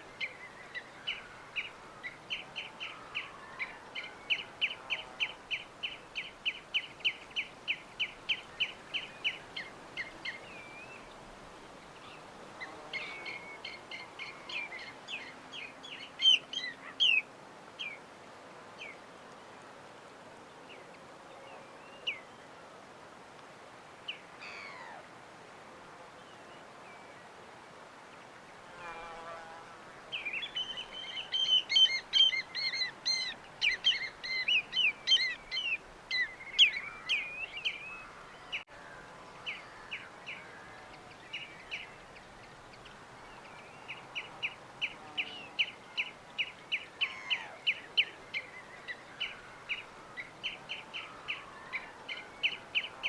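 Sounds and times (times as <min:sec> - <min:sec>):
birds chirping: 0:00.0 - 0:18.0, 0:30.0 - 0:53.0
low background hiss: 0:00.0 - 0:53.0.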